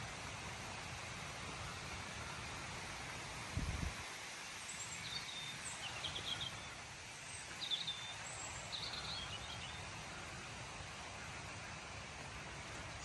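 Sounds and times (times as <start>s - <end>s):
steady background hiss: 0.0s - 13.0s
small birds chirping: 4.4s - 10.3s.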